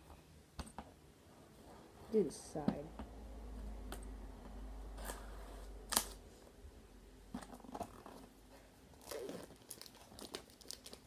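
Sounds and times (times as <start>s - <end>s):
packaging crinkling and tearing: 9.0s - 11.0s
packaging rustling: 9.0s - 11.0s.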